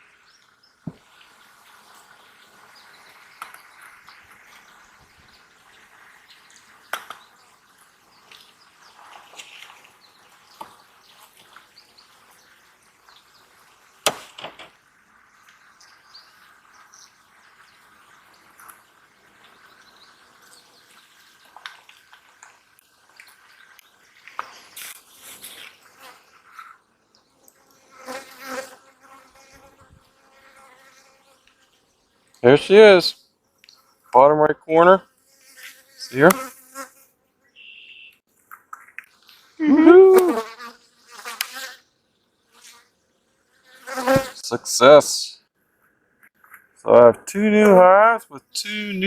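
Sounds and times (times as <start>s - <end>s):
sharp knocks: 14.0s - 14.8s.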